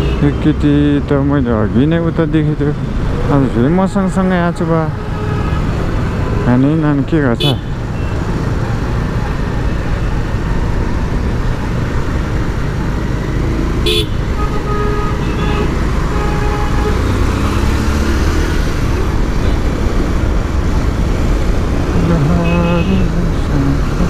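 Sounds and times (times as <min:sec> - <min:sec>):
motorcycle engine rumble: 0:00.0 - 0:24.0
vehicle horn toots: 0:07.4 - 0:08.2, 0:13.8 - 0:17.3, 0:22.4 - 0:23.1.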